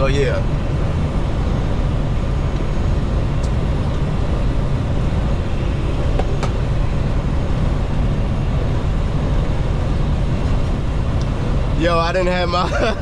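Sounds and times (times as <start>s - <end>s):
truck engine drone and road noise: 0.0s - 13.0s.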